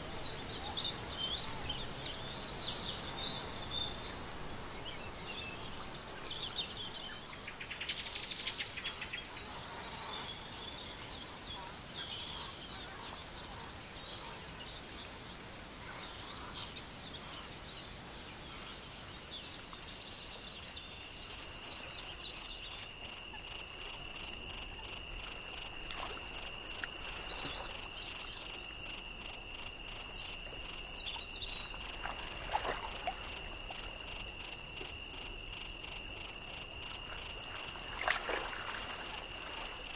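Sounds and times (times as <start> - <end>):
insects trilling: 16.5 - 39.9
pulsing high insect chirp: 33.2 - 39.9.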